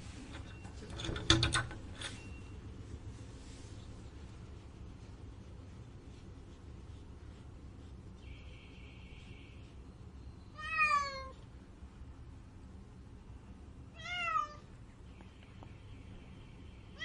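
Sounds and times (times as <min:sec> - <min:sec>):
cat meowing: 0:10.6 - 0:11.4, 0:14.0 - 0:14.6.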